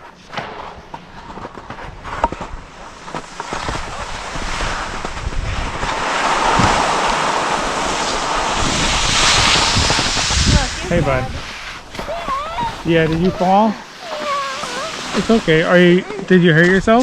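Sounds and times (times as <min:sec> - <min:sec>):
skis scraping over snow: 0:00.0 - 0:17.0
wind on microphone: 0:01.6 - 0:15.7.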